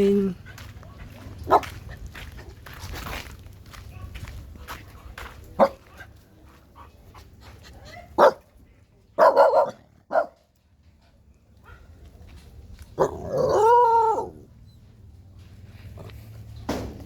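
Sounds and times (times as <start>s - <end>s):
dog barking: 1.5s - 1.8s, 5.6s - 5.8s, 7.9s - 8.5s, 9.2s - 10.4s.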